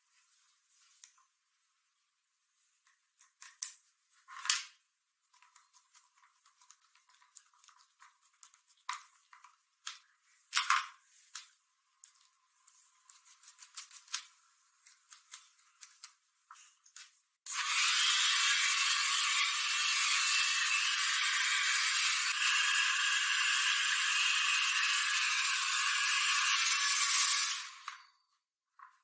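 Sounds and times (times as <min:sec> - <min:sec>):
small clicks taps and scrapes: 0:02.8 - 0:04.7, 0:05.3 - 0:17.2.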